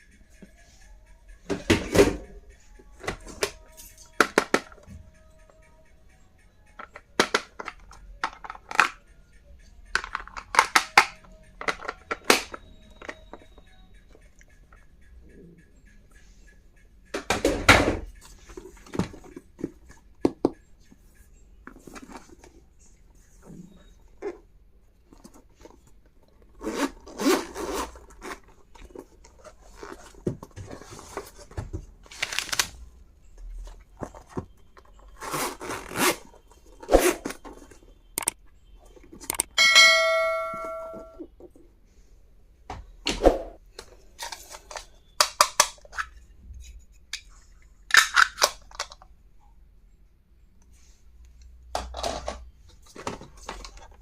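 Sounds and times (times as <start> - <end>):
packaging clicks and taps: 2.9 - 5.6, 6.6 - 9.2, 9.8 - 14.8, 33.4 - 38.4, 43.7 - 46.2.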